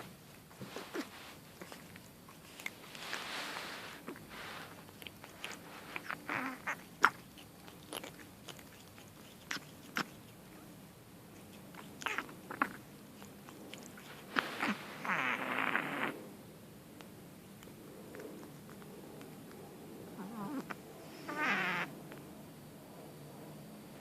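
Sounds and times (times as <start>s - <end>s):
kitten snorting and snuffling: 0.6s - 10.6s, 11.3s - 16.3s, 18.0s - 21.9s.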